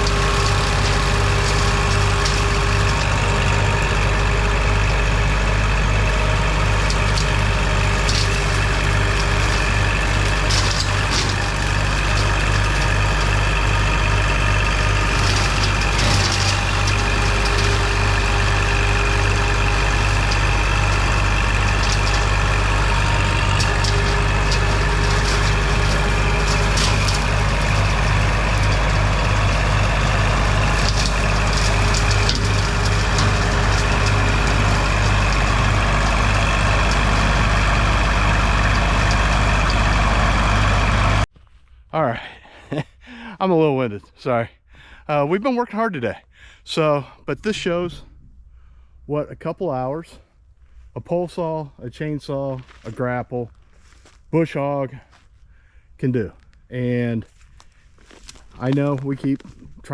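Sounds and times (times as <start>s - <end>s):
knocks and cracks: 0.0s - 41.2s
tractor diesel engine throbbing: 0.0s - 41.3s.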